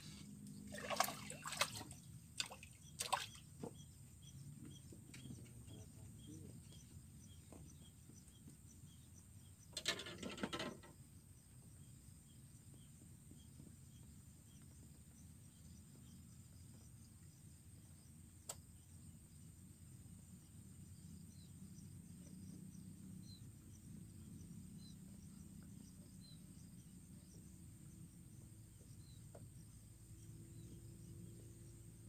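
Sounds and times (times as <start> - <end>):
faint high hum: 0.0 - 8.0.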